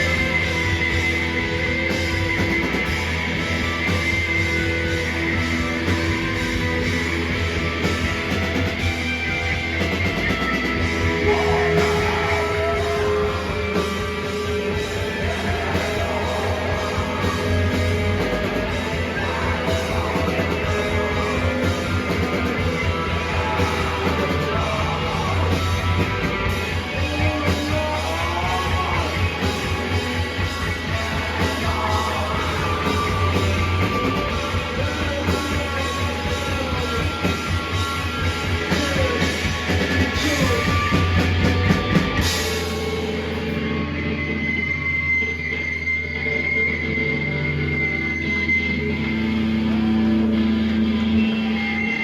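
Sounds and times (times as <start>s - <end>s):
drum kit pounding: 0.0s - 43.6s
bass guitar: 0.0s - 52.0s
distorted electric guitars: 0.0s - 52.0s
person shouting singing: 11.0s - 30.0s, 30.9s - 37.2s.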